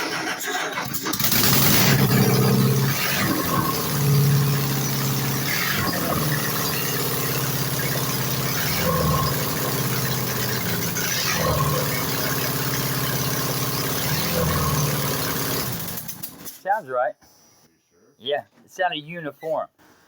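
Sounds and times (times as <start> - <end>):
engine running: 0.0 - 16.5.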